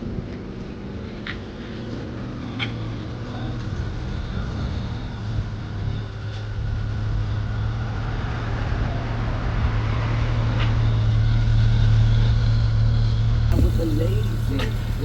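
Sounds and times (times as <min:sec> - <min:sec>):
car engine rumbling: 0:13.5 - 0:15.0.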